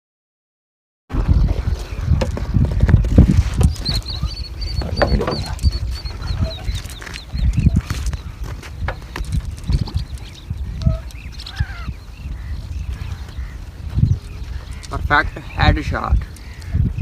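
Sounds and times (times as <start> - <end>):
microphone handling: 1.1 - 11.1
wind rumble: 1.1 - 17.0
bird chirping: 1.2 - 17.0.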